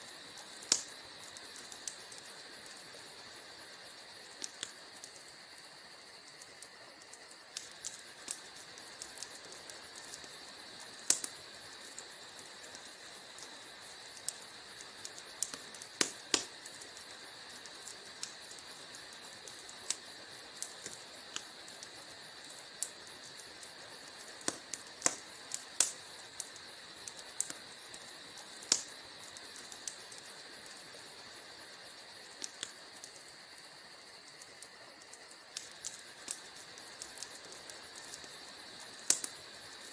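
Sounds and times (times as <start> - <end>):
fire hissing: 0.0 - 39.9
fire pops and snaps: 0.1 - 39.9.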